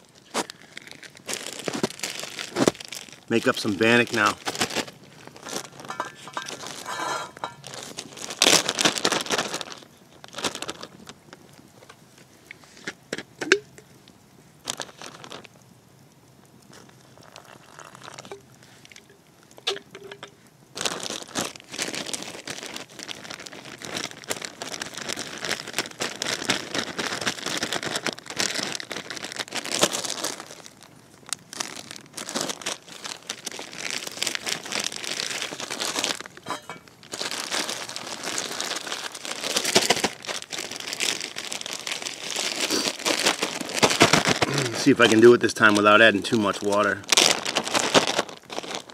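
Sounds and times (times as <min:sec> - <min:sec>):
plastic bag crinkling and rustling: 0:00.0 - 0:15.8, 0:16.5 - 0:48.9.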